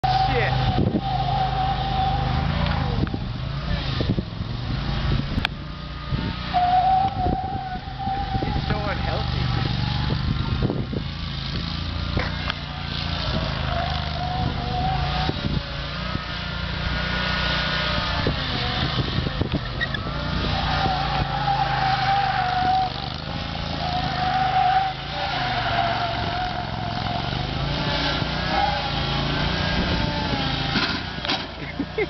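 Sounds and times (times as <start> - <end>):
lawn mower engine running: 7.2 - 32.0.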